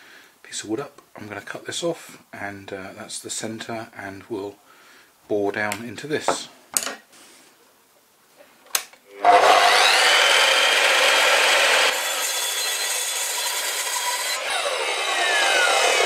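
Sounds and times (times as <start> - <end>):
power saw cutting wood: 9.1 - 16.0.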